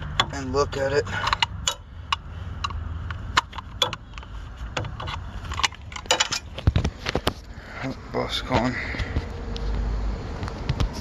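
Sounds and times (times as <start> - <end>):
tools and metal parts clicking: 0.0 - 7.2
low steady rumble: 0.0 - 11.0.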